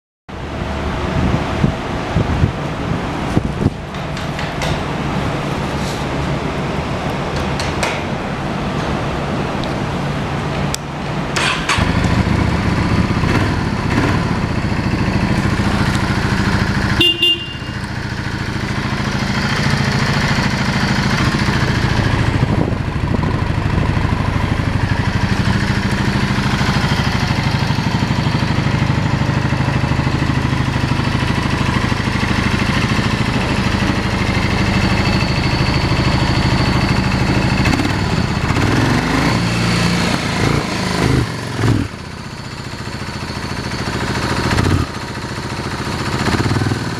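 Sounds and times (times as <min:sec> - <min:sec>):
motorcycle engine idling: 0:11.7 - 0:46.9.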